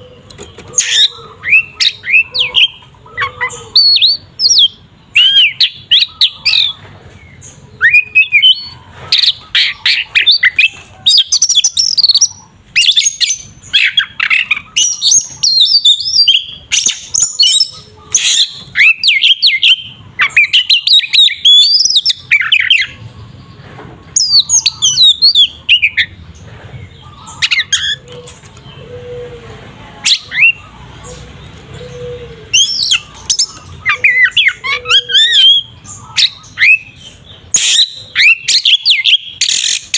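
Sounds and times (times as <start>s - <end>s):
magpie-robin singing whistled phrases: 7.8s - 8.8s, 9.7s - 23.0s, 32.5s - 39.9s.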